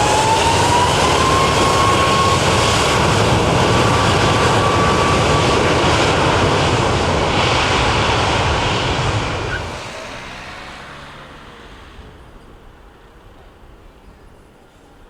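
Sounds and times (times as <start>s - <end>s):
airliner passing: 0.0s - 14.1s.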